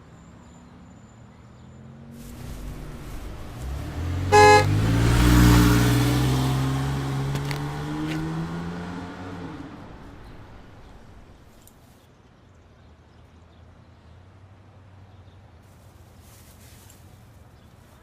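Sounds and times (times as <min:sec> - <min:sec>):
car horn honking: 0:02.2 - 0:11.5
car driving past: 0:02.2 - 0:11.7.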